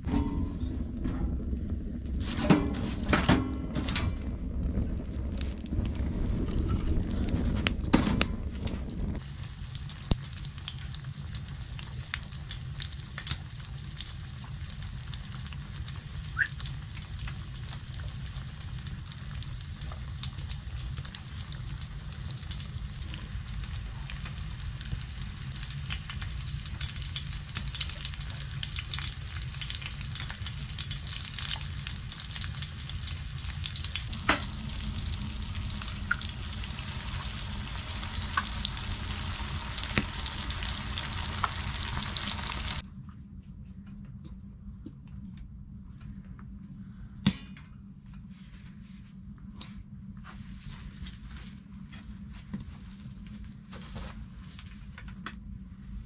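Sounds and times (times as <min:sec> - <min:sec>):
tomatoes sizzling in a pan: 0:09.1 - 0:42.8
pops and crackles: 0:39.9 - 0:41.6.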